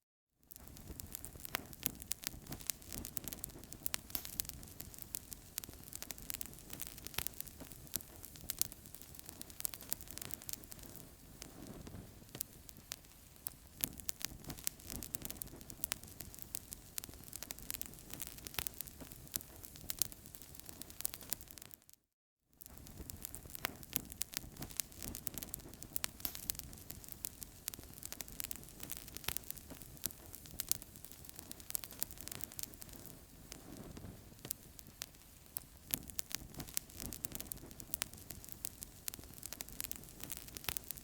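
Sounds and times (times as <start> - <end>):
wood fire crackling: 0.5 - 21.9, 22.6 - 41.0
low rush of flames: 22.8 - 41.0.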